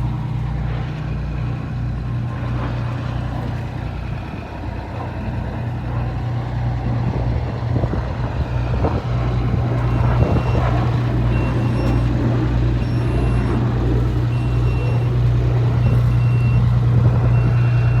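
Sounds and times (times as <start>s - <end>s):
diesel engine humming: 0.0s - 18.0s
backup alarm beeping: 9.3s - 18.0s.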